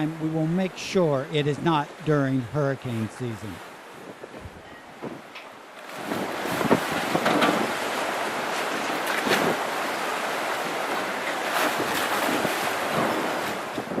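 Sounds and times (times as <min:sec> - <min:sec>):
waves rushing: 0:00.0 - 0:14.0
wind gusting on microphone: 0:03.7 - 0:14.0.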